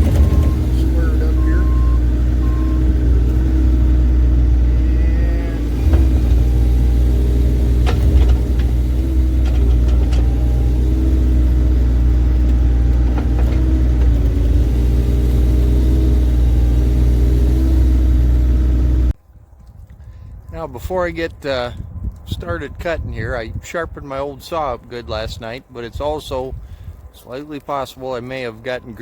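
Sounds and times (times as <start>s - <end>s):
diesel engine rumbling: 0.0s - 19.2s.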